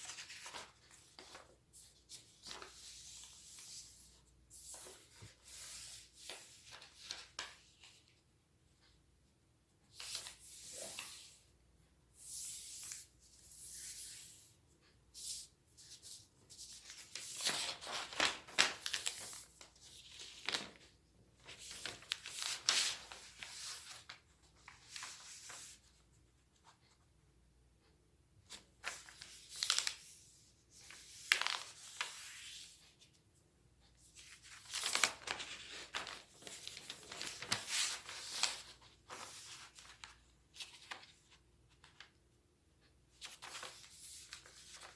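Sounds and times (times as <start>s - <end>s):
paper rustling and creasing: 0.0s - 8.1s, 16.5s - 26.0s, 28.5s - 30.2s, 30.8s - 32.8s, 34.1s - 42.1s, 43.1s - 44.9s.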